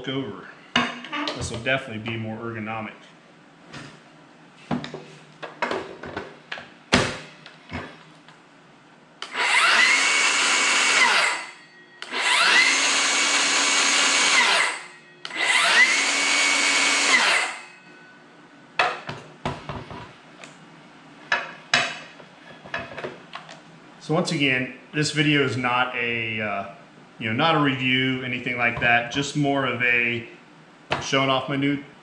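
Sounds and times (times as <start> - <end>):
circular saw motor whining: 9.2 - 17.8.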